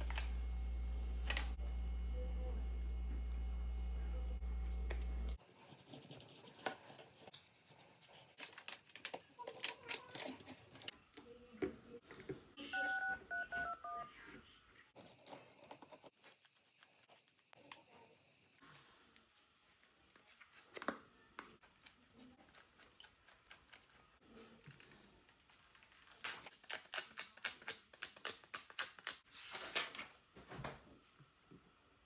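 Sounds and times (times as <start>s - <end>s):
low electrical hum: 0.0s - 5.9s.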